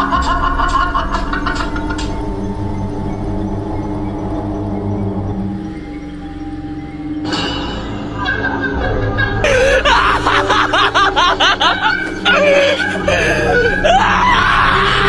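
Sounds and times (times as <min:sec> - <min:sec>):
rapid chuckling laughter: 0:00.0 - 0:02.4, 0:08.0 - 0:15.0
background music: 0:00.0 - 0:15.0.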